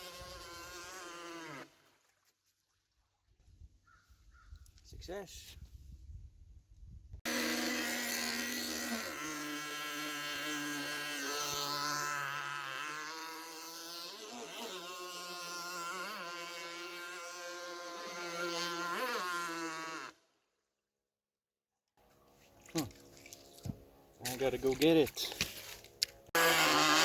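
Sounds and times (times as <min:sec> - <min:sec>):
small engine buzzing at high revs: 0:00.0 - 0:01.8, 0:07.2 - 0:20.2, 0:26.2 - 0:27.0.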